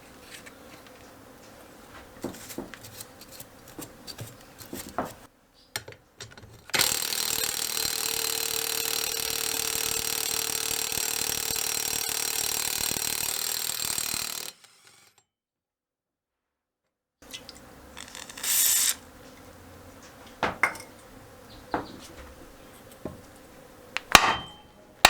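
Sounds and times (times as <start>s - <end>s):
small power tool running: 6.8s - 15.2s, 17.5s - 19.9s
hand tools knocking on metal: 20.2s - 21.0s, 21.6s - 23.3s, 24.0s - 24.8s.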